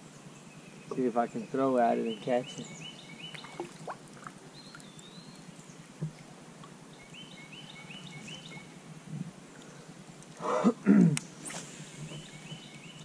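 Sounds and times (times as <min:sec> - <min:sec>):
low hiss: 0:00.0 - 0:13.0
songbird whistled calls: 0:00.6 - 0:03.7, 0:07.0 - 0:08.8.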